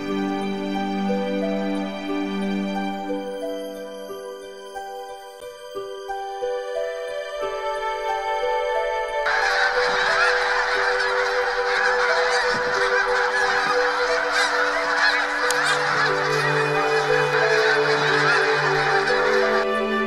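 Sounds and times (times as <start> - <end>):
flock of geese honking: 0.0 - 4.9, 9.2 - 20.0.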